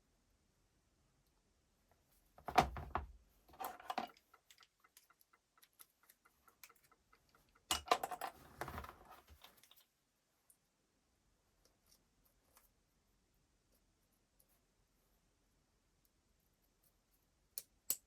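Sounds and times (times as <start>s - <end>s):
small hard parts clicking and rattling: 3.5s - 9.8s.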